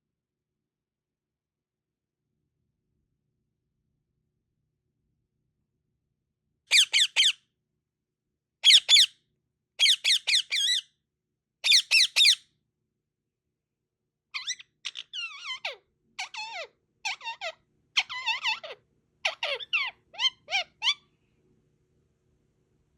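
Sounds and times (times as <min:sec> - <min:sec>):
parrot chirping: 0:06.7 - 0:07.4, 0:08.6 - 0:09.1, 0:09.8 - 0:10.8, 0:11.6 - 0:12.4, 0:14.3 - 0:21.1
parrot kiss-like squeaks: 0:14.4 - 0:21.0.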